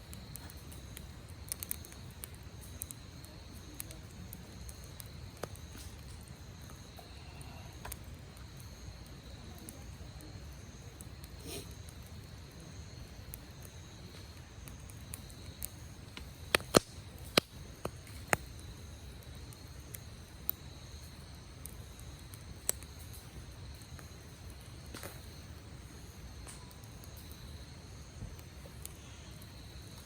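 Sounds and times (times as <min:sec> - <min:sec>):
campfire crackling: 0:00.0 - 0:30.0
fire popping: 0:00.0 - 0:30.0.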